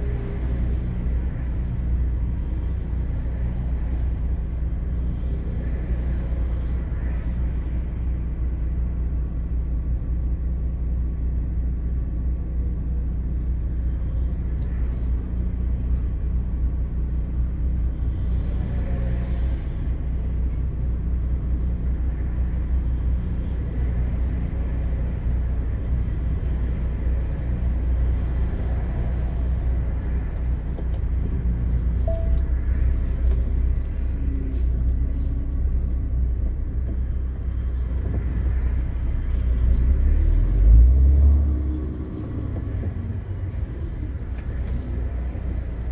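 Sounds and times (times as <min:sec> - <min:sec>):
truck diesel engine rumbling: 0:14.2 - 0:45.9.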